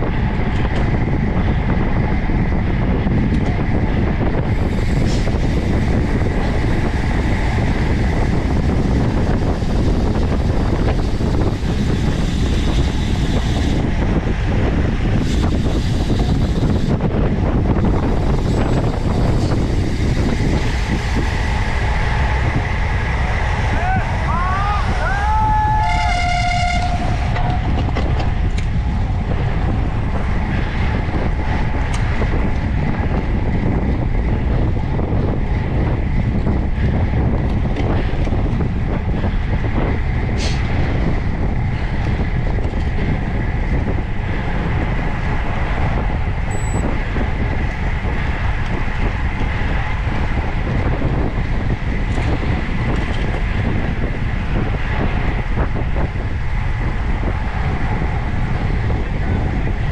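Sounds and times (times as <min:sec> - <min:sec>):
wind and road rumble: 0:00.0 - 0:59.9
short pitched tone: 0:46.5 - 0:46.8.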